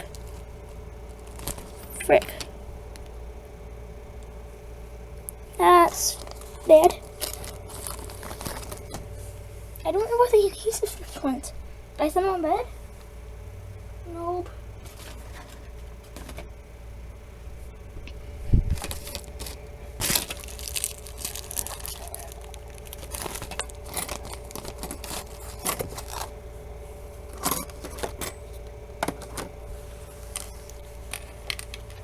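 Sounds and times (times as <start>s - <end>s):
small objects clicking and clattering: 18.8s - 26.3s, 30.3s - 32.0s.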